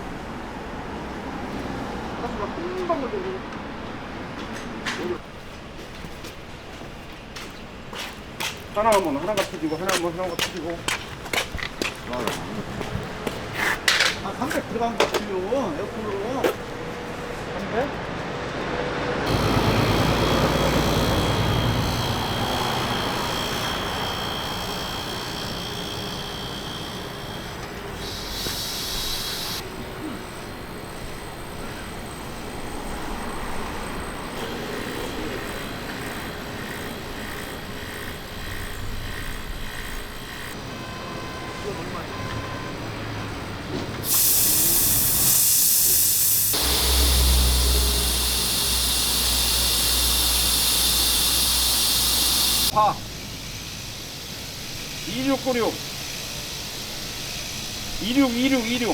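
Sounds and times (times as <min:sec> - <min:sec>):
machine rumble: 0:19.3 - 0:28.0, 0:46.3 - 0:52.7
pressurised gas hissing: 0:19.3 - 0:29.7, 0:44.0 - 0:52.8.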